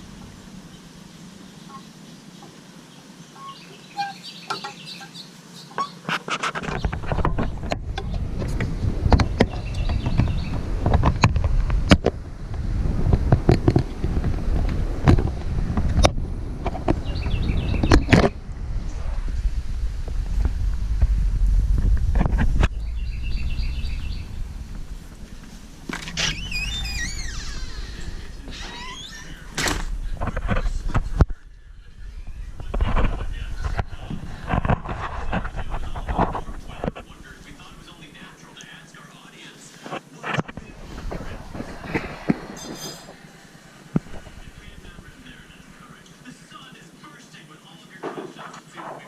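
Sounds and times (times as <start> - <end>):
steady low rumble: 0.0 - 1.6, 6.8 - 39.5, 40.5 - 46.8
small birds chirping: 0.0 - 11.6, 16.7 - 19.0, 22.4 - 39.8, 40.6 - 48.0
faint bird chirps: 0.2 - 6.1, 22.6 - 24.6
wind buffeting microphone: 6.6 - 38.3, 40.5 - 46.0.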